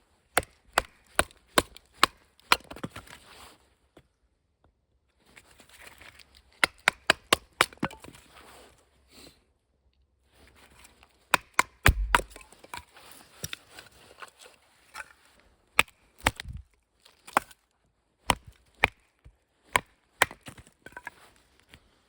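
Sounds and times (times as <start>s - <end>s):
wood splitting thud: 11.9s - 12.4s
wooden baton striking knife: 11.9s - 12.4s.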